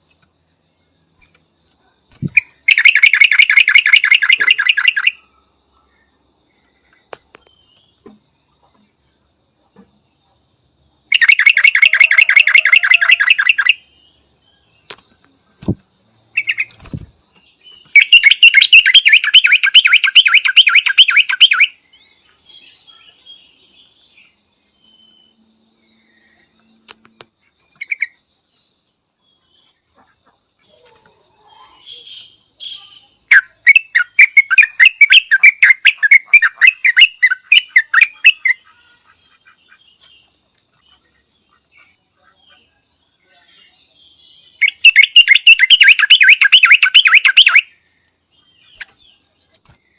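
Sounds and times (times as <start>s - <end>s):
bird chattering call: 2.2s - 5.2s, 11.1s - 13.8s, 17.9s - 21.7s, 31.8s - 38.8s, 44.6s - 47.7s.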